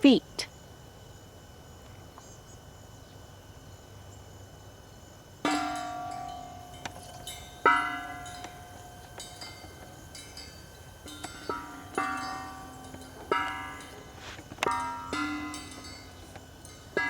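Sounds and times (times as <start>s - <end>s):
steel gears clanking and ringing: 5.5s - 17.0s.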